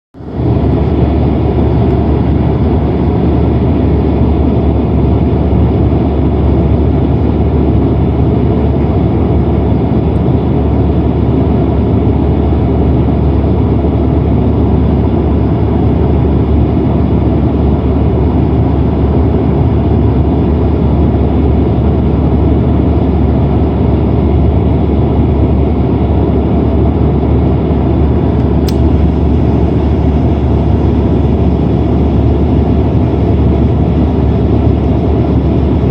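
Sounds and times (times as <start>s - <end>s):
airliner cabin engine rumble: 0.2s - 35.9s
brief click: 28.4s - 28.9s.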